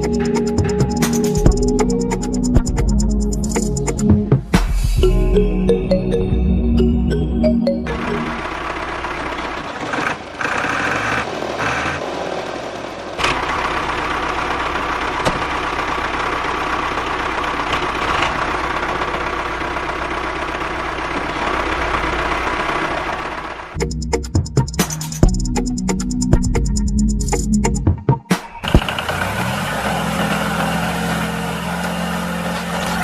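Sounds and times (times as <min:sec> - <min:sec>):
small tractor motor running: 0:07.8 - 0:23.8, 0:28.6 - 0:33.0.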